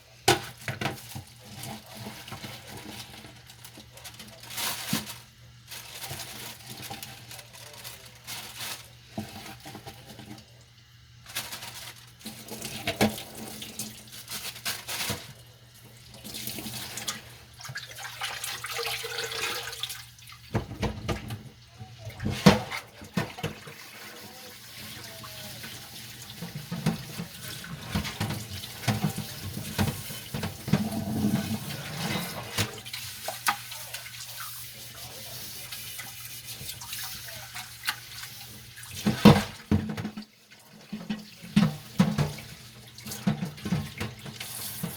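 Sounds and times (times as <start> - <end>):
tap water running: 11.6 - 44.9
dishes clinking: 26.4 - 32.8.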